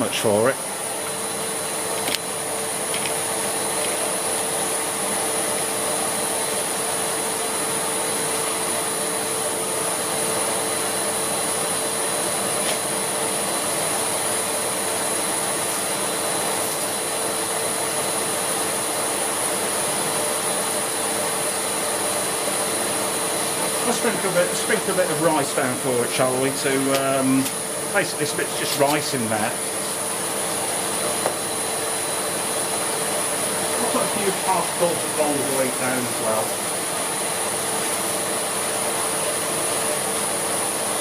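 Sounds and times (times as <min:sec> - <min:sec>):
vacuum cleaner running on carpet: 0:00.0 - 0:41.0.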